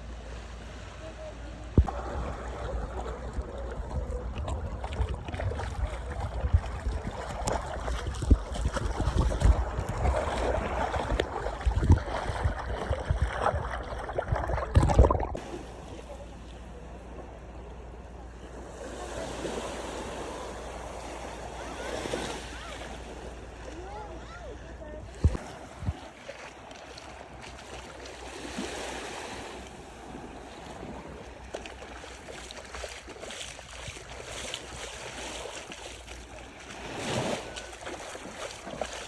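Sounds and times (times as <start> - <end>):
sea water: 0.0 - 39.0
waves washing: 0.0 - 39.0
wind buffeting microphone: 1.6 - 15.4.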